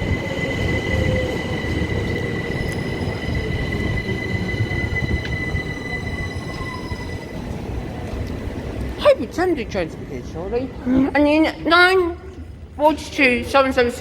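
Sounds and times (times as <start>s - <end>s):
high-pitched squeal: 0.0s - 7.8s
train low rumble: 0.0s - 10.8s.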